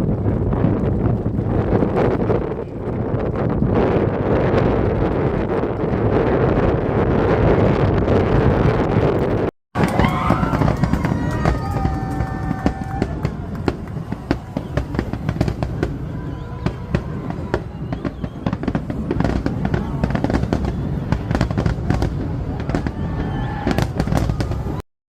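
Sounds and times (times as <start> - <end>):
low rumble: 0.0 - 24.8
pops and crackles: 0.1 - 6.7
faint voices: 9.8 - 24.8.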